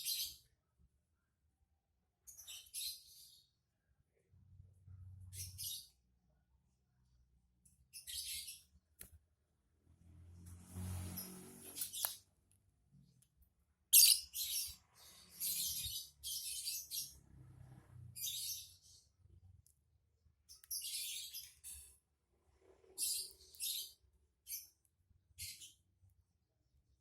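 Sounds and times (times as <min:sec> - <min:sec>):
lovebird chattering calls: 0:14.0 - 0:14.7.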